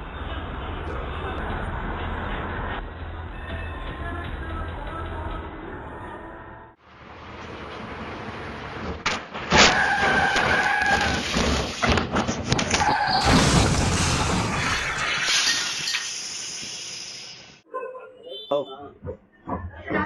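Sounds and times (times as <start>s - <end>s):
vehicle crash impact: 8.8s - 16.0s
crashing and breaking noise: 8.8s - 16.2s.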